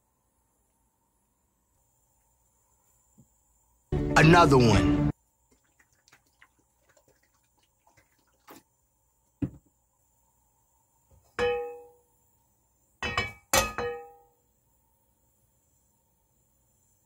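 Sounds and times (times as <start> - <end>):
frying pan clanking on metal grate: 11.4 - 11.9, 13.0 - 14.2.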